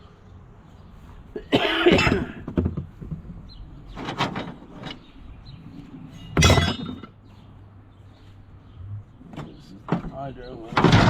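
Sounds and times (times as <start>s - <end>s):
metal parts clanking and scraping: 3.9s - 7.2s, 9.3s - 11.0s.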